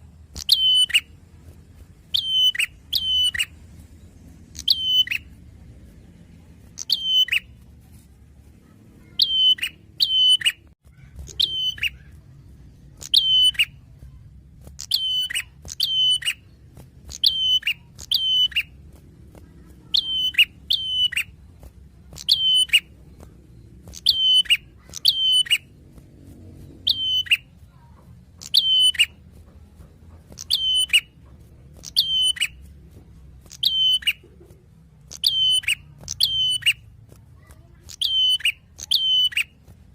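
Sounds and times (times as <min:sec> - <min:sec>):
bird chirping sharply: 0:00.4 - 0:01.2, 0:02.0 - 0:03.7, 0:04.5 - 0:05.4, 0:06.8 - 0:07.6, 0:09.0 - 0:13.8, 0:14.8 - 0:18.8, 0:19.8 - 0:21.4, 0:22.2 - 0:25.7, 0:26.8 - 0:27.5, 0:28.4 - 0:29.2, 0:30.3 - 0:31.2, 0:31.8 - 0:32.6, 0:33.5 - 0:34.2, 0:35.1 - 0:36.8, 0:37.8 - 0:39.6.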